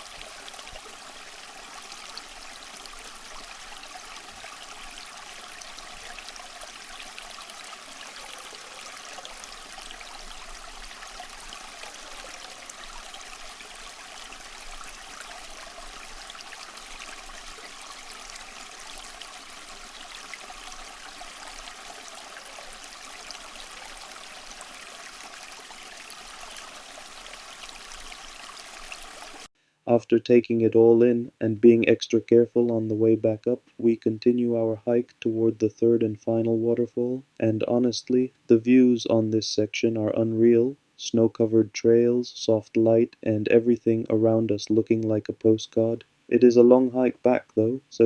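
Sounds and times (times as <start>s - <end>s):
waterfall rushing: 0.0s - 6.2s.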